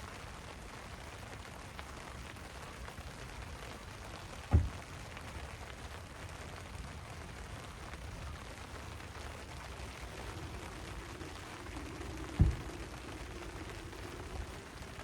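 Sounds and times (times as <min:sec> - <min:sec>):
steady rain: 0:00.0 - 0:15.0
dull thump: 0:04.5 - 0:04.8, 0:11.8 - 0:13.2.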